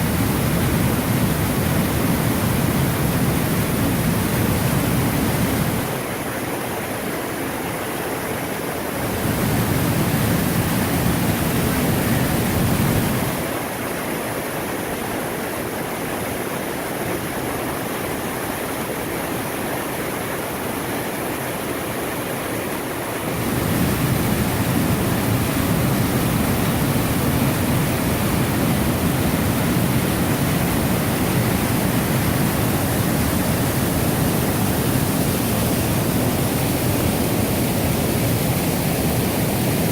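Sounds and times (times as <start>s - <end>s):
waterfall rushing: 0.0s - 6.1s, 9.0s - 13.7s, 23.0s - 39.9s.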